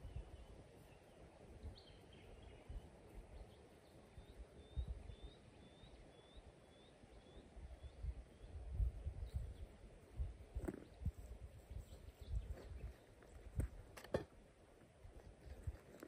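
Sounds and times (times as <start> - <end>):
bird chirping: 0.0 - 9.8, 10.6 - 13.4.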